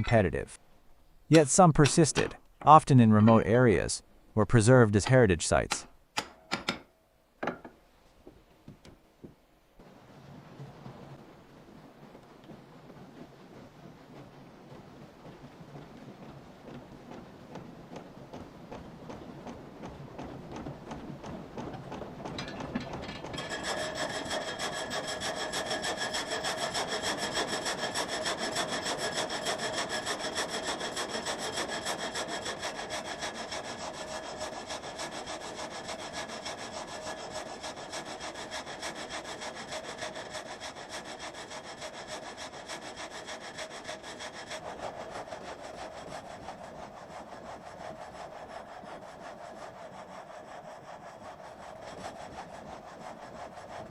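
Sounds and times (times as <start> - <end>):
sawmill blade rasping through log: 20.6 - 53.9.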